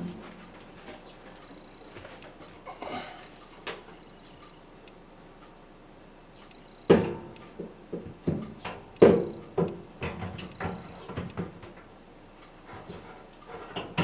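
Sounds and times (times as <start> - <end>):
fan parts knocking and clattering: 0.0 - 2.6, 6.9 - 14.0.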